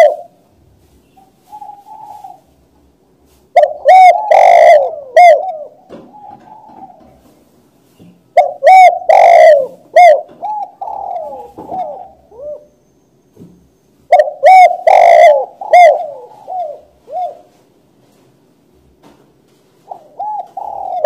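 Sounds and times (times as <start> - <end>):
dove cooing: 0.0 - 0.4, 1.2 - 2.7, 3.5 - 7.4, 8.3 - 12.8, 14.1 - 17.7, 19.8 - 21.0.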